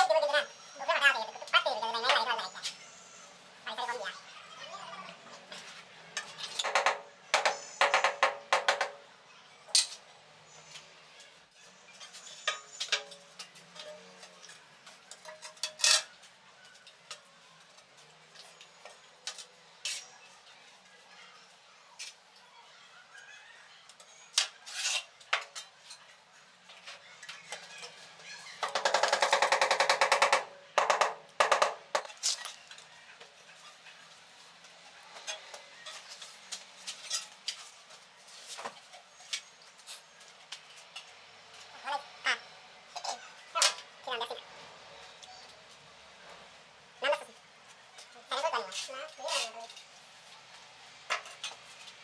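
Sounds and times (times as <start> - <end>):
tiles knocking: 6.6 - 9.0, 28.6 - 32.2.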